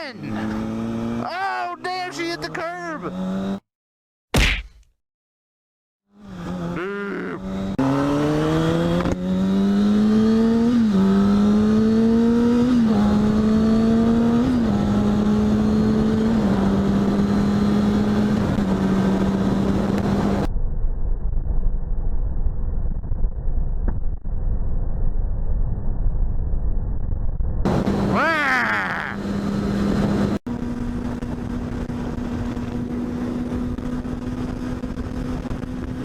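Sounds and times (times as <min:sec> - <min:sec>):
motorcycle engine accelerating through gears: 0:00.2 - 0:01.3, 0:02.3 - 0:03.6, 0:06.1 - 0:24.2, 0:28.8 - 0:36.0.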